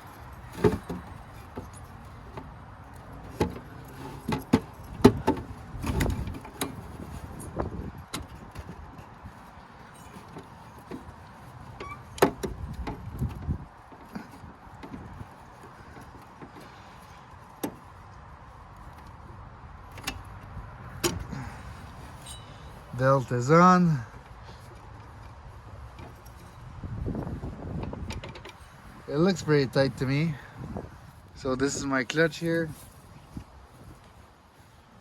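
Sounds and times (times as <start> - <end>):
metal clicks and clinks: 22.1 - 22.8.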